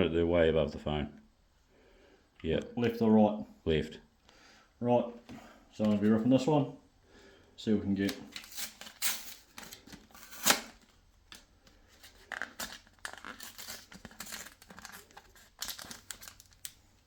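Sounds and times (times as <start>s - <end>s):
plastic packaging tearing: 8.3s - 11.4s, 12.0s - 17.0s
wrapper crinkling: 8.3s - 17.0s.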